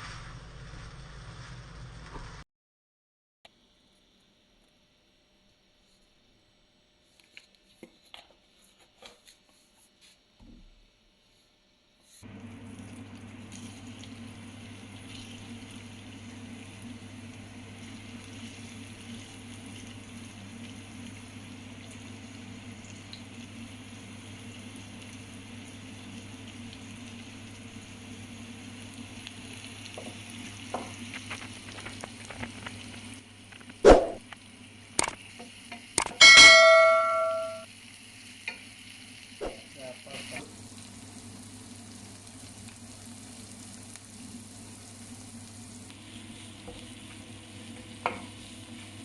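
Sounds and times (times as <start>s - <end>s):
food sizzling on griddle: 0.0s - 2.4s, 12.2s - 49.0s
metal clanging on griddle: 36.1s - 37.7s.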